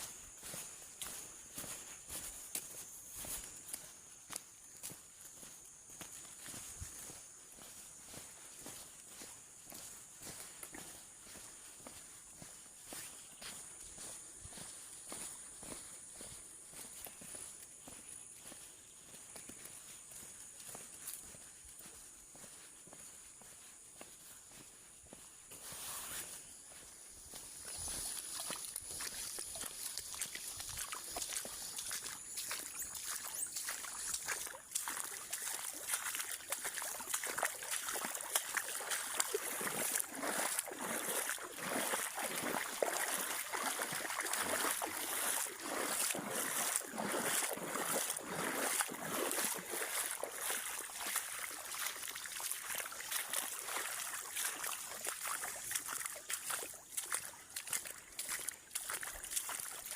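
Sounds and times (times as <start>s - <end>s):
water splashing and sloshing: 25.6s - 59.9s
water trickling: 27.6s - 59.9s.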